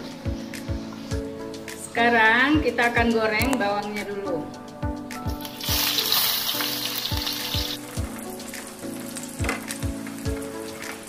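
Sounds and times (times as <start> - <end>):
shallots sizzling in oil: 5.4 - 11.0.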